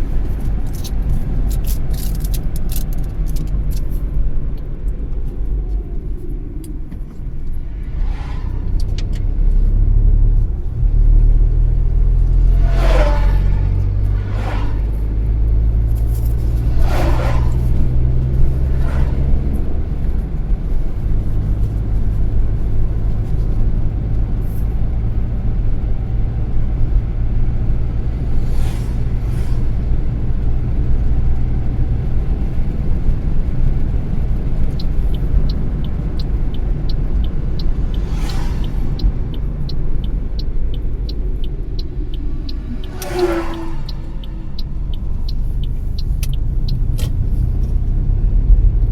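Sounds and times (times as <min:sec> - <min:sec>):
car engine and road rumble: 0:00.0 - 0:48.9
passing traffic whooshes: 0:00.0 - 0:48.9
turn indicator ticking: 0:29.7 - 0:48.9.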